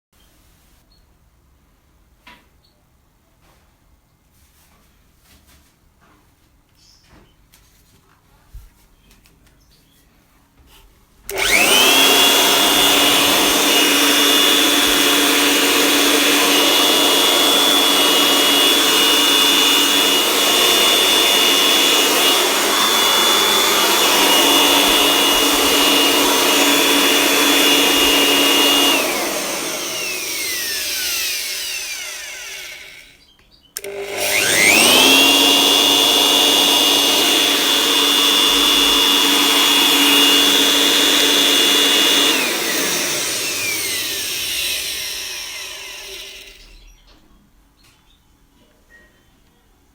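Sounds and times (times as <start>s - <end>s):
electric blower whining: 11.3s - 47.0s.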